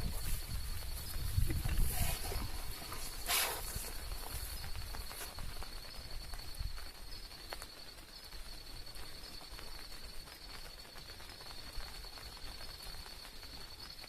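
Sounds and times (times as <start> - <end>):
low rumble on microphone: 0.0 - 6.8
insects chirring: 0.0 - 14.0.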